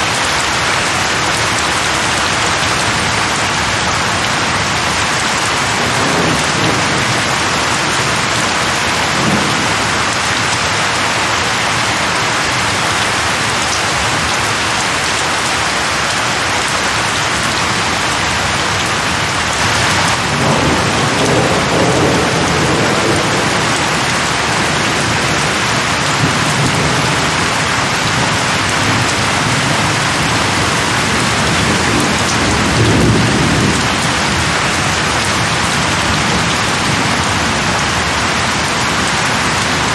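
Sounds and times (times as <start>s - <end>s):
heavy rain: 0.0s - 39.9s
thunder rumbling: 4.1s - 15.6s, 19.5s - 38.2s.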